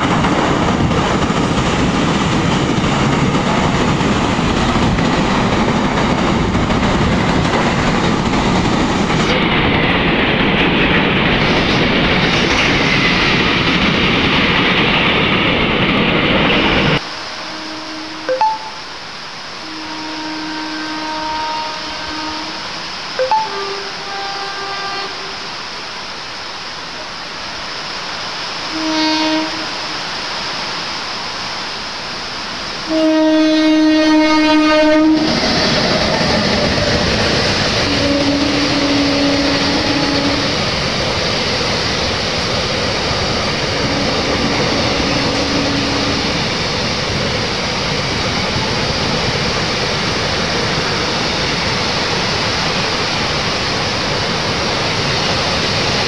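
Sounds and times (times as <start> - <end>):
rain hiss: 0.0 - 56.0
train passing rush of wheels: 0.0 - 56.0
locomotive horn blasts: 17.2 - 18.9, 19.6 - 25.6, 28.7 - 30.1, 32.9 - 35.4, 37.8 - 40.6, 43.8 - 46.4.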